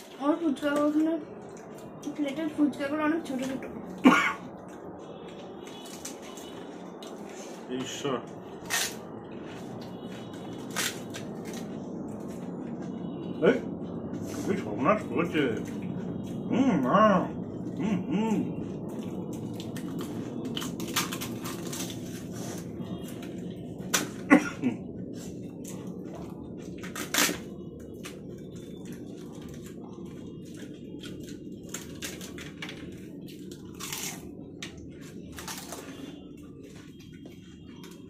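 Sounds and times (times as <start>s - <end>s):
wet chewing: 17.4s - 38.0s
crisp shells crunching: 19.4s - 22.4s, 28.9s - 36.2s.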